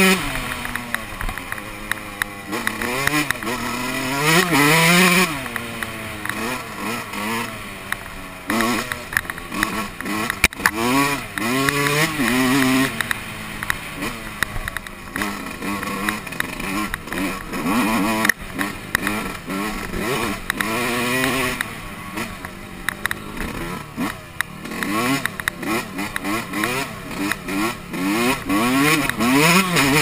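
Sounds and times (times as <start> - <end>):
motocross engine revving: 0.0 - 30.0
sharp click: 0.1 - 3.6, 7.8 - 27.6.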